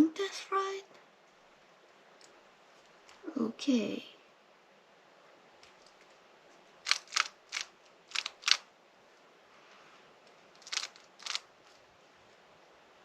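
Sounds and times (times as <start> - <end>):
rubik's cube clacking: 6.8 - 8.7, 10.3 - 11.8.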